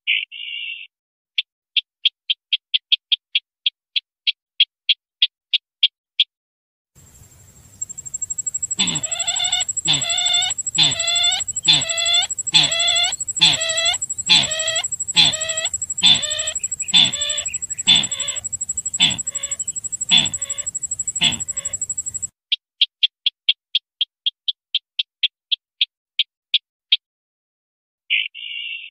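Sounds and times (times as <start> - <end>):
harsh falling bird calls: 7.0 - 22.3
steady high-pitched tone: 7.7 - 22.3.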